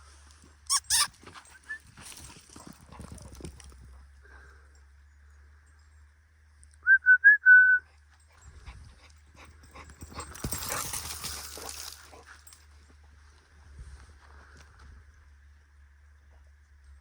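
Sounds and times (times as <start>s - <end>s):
dog whining: 0.7s - 1.8s.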